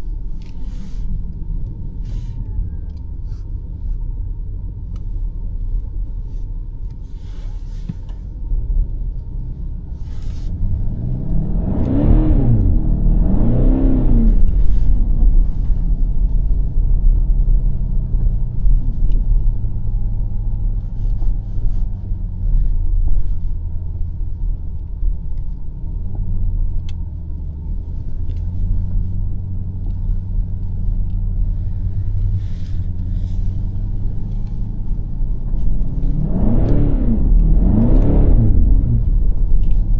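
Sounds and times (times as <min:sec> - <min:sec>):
car engine revving: 0:10.0 - 0:17.7, 0:28.3 - 0:39.9.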